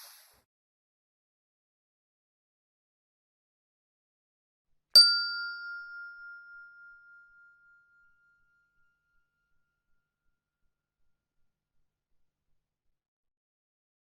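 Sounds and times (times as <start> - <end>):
bell ding: 5.0 - 9.4.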